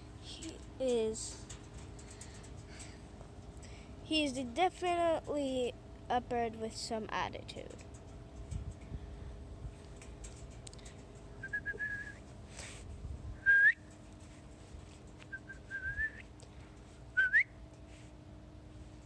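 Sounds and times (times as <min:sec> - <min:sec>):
person whistling: 0:11.4 - 0:12.2, 0:13.4 - 0:13.8, 0:15.3 - 0:16.2, 0:17.2 - 0:17.5.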